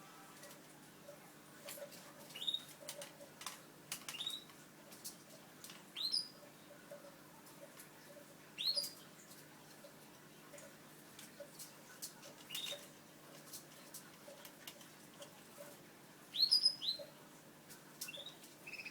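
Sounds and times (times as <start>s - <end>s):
faint ticks and rustles: 0.2s - 18.9s
canaries cheeping: 2.3s - 2.8s, 4.1s - 4.6s, 6.0s - 6.4s, 8.6s - 9.0s, 12.4s - 12.9s, 16.3s - 17.2s, 18.0s - 18.9s.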